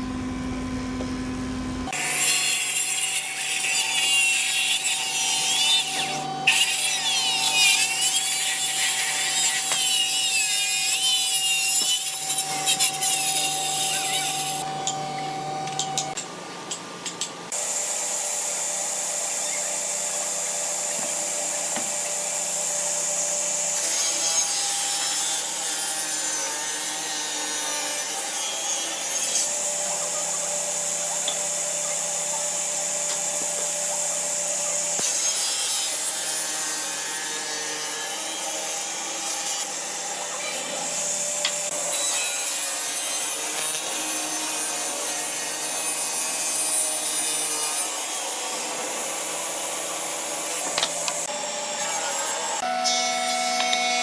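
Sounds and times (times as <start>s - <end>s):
sawing and rasping wood: 1.9s - 14.7s.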